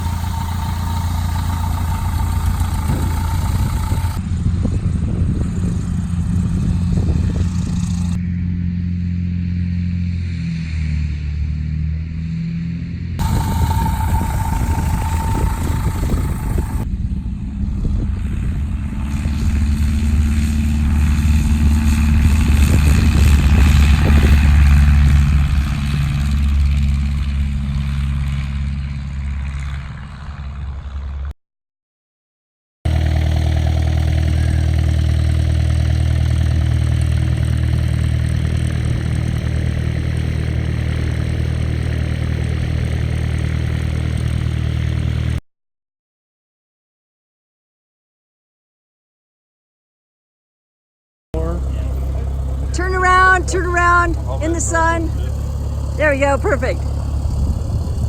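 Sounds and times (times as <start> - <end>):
small plane piston engine: 0.0 - 11.0, 13.2 - 31.3, 32.9 - 45.4, 51.4 - 58.0.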